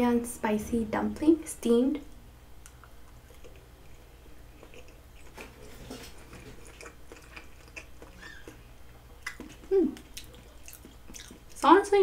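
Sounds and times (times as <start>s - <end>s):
person chewing: 2.6s - 11.6s.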